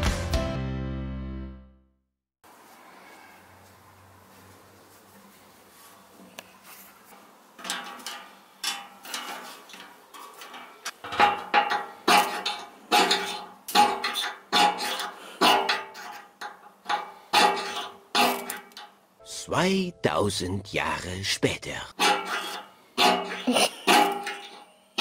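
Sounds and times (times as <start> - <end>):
fire steel scraping with metallic ring: 7.6 - 19.0, 22.0 - 25.0.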